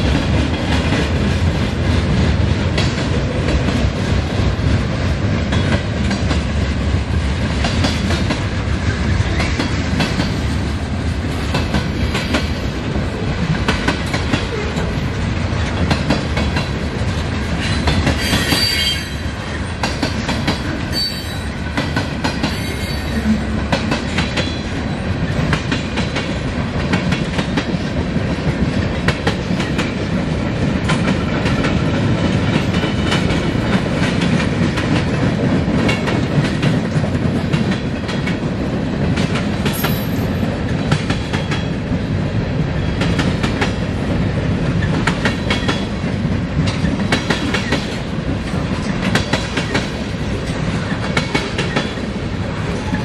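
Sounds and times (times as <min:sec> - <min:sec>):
freight train rumbling past: 0:00.0 - 0:53.0
high-pitched wheel squeals: 0:18.2 - 0:19.2, 0:22.5 - 0:23.4
wheels clacking over rail joints: 0:44.6 - 0:53.0.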